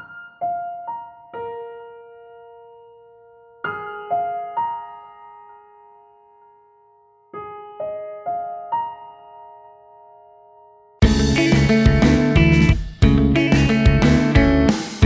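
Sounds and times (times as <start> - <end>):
soft slow piano notes: 0.0 - 10.9.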